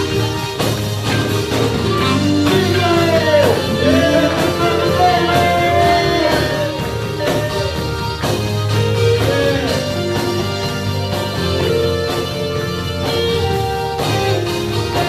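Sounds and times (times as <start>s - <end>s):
live band playing: 0.0s - 15.0s
person singing: 1.9s - 8.3s, 8.9s - 10.3s.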